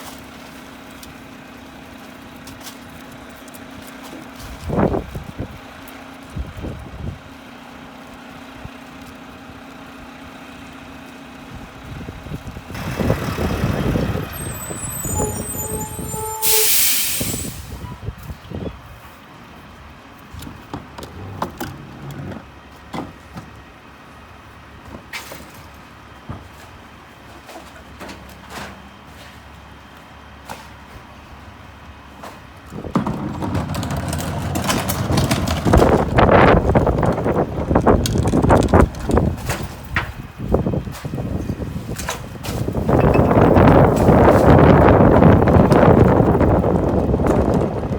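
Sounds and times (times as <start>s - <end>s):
garbage truck engine idling: 7.4s - 17.8s
truck diesel engine idling: 12.7s - 17.8s
air brakes hissing: 12.8s - 18.0s
loud clattering with sharp knocks: 32.8s - 37.2s.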